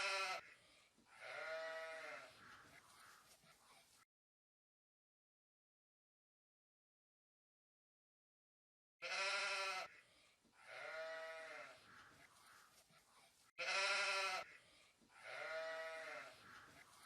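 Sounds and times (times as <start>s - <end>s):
bleating: 0.0s - 3.3s, 9.0s - 10.0s, 10.6s - 12.7s, 13.6s - 14.6s, 15.2s - 16.9s.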